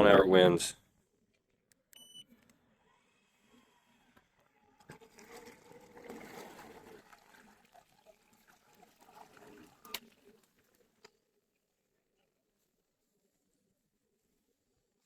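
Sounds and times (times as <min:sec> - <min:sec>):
water lapping against boat hull: 0:04.8 - 0:11.0.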